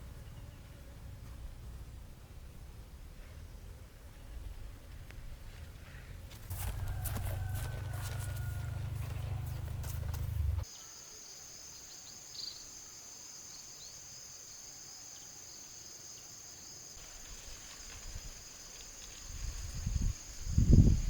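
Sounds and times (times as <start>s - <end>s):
insects chirring: 6.5s - 21.0s.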